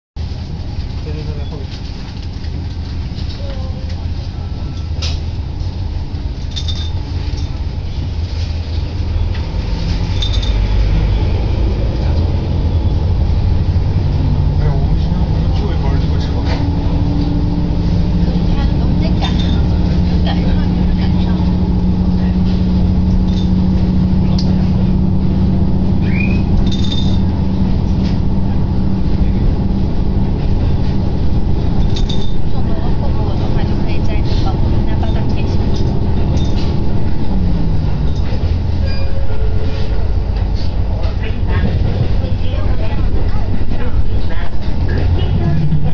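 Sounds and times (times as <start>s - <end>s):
diesel railcar low rumble: 0.2s - 45.9s
high squeal: 26.0s - 26.8s, 38.8s - 39.4s.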